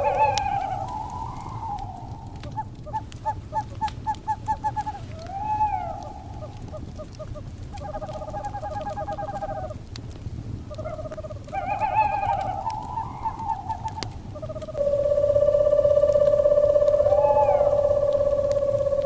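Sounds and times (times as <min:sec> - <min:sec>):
steady tone: 0:00.0 - 0:02.4, 0:14.8 - 0:19.0
owl calls: 0:00.0 - 0:09.8, 0:10.7 - 0:19.0
crackling fire with pops: 0:00.3 - 0:15.1.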